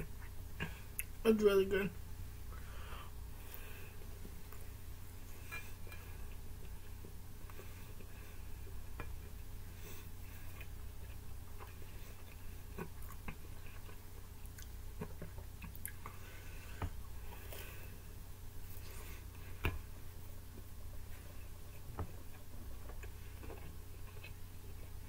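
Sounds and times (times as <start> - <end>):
steady low hum: 0.0 - 25.0
person chewing with mouth clicks: 10.4 - 16.2.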